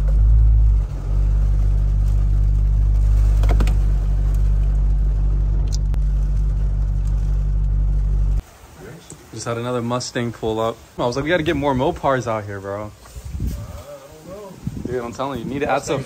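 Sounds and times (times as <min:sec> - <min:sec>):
car engine idling: 0:00.0 - 0:08.7.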